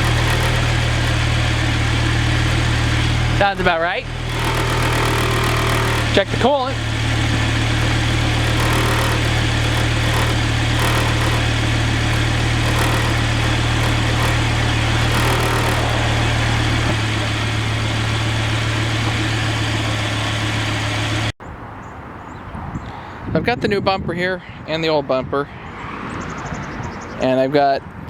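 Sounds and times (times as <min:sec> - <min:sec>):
car engine idling: 0:00.0 - 0:21.4.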